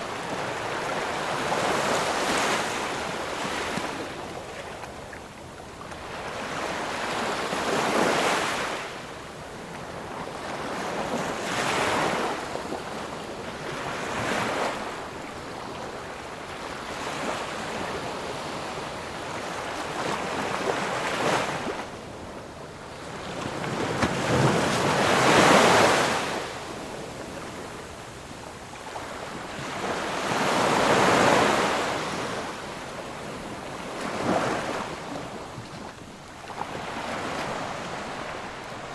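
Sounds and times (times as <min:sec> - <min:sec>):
ocean waves breaking: 0:22.8 - 0:27.9, 0:28.8 - 0:38.9.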